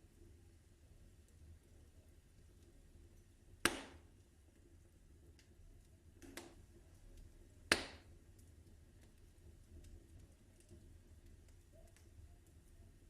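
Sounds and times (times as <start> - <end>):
wood fire crackling: 0.0 - 13.0
sharp fire pops: 3.6 - 4.1, 7.7 - 8.1.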